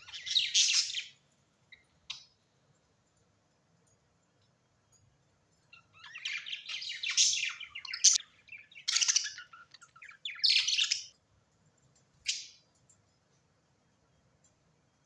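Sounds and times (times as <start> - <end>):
birds chirping: 0.0 - 2.8, 5.5 - 11.2, 12.2 - 12.9.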